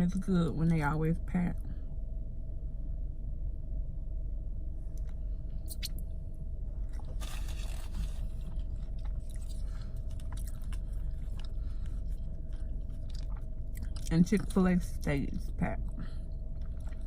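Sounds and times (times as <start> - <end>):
steady low hum: 0.0 - 17.0
chewing and crunching food: 4.9 - 17.0
mouth clicks: 5.7 - 6.0.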